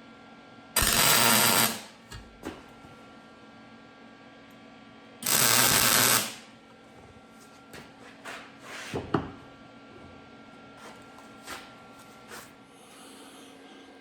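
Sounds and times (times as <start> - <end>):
welding arc crackle: 0.8 - 1.9, 5.2 - 6.5.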